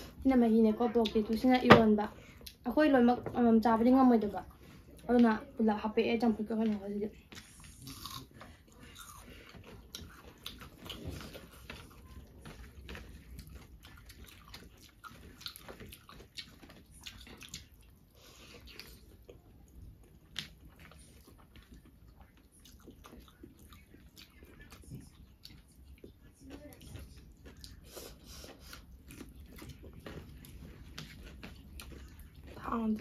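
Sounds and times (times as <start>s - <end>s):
person chewing: 6.6s - 33.0s.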